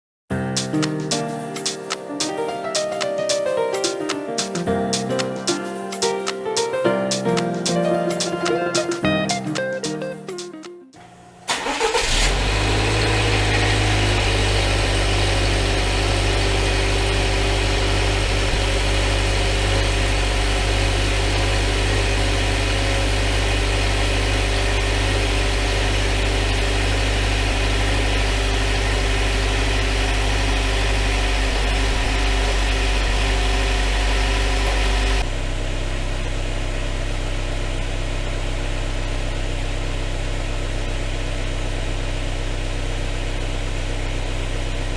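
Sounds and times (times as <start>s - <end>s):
car engine starting and idling: 11.5s - 44.9s.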